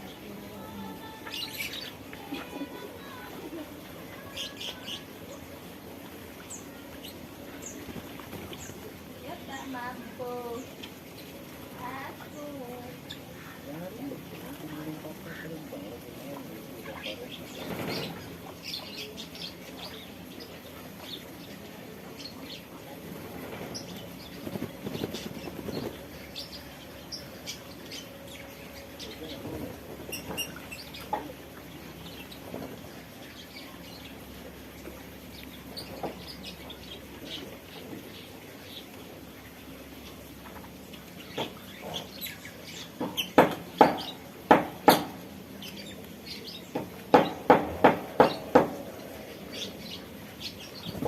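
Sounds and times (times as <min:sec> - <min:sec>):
small birds chirping: 0:00.0 - 0:51.0
steady background hiss: 0:00.0 - 0:51.0
bird splashing and fluttering wings: 0:07.4 - 0:09.5, 0:16.9 - 0:18.8, 0:22.9 - 0:26.8.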